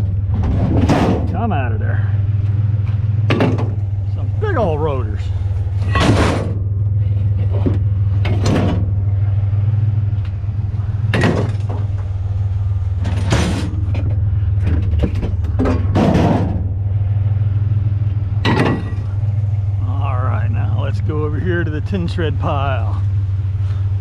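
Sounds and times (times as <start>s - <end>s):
metal rotors clanging onto pile: 0.0s - 1.6s, 5.7s - 9.0s, 11.1s - 12.1s, 13.0s - 16.7s, 18.4s - 19.3s
truck engine idling: 0.0s - 24.0s.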